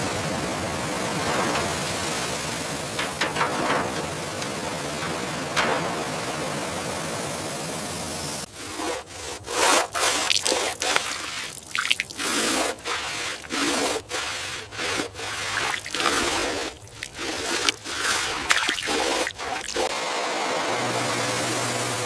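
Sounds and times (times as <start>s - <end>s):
hand rubbing on a surface: 12.2s - 19.8s.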